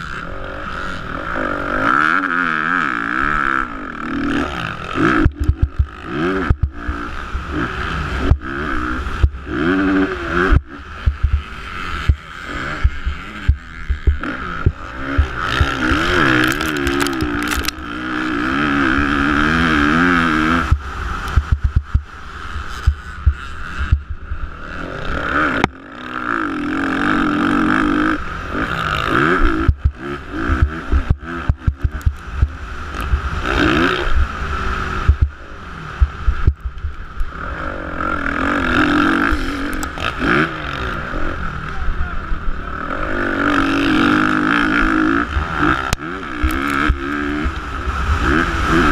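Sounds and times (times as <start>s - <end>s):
motocross bike engines revving: 0.0s - 48.9s
sharp clicks and knocks: 16.4s - 17.8s.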